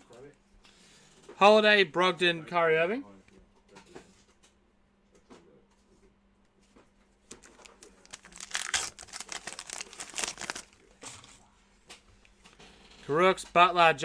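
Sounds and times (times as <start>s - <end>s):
plastic wrapper crinkling: 7.3s - 10.9s.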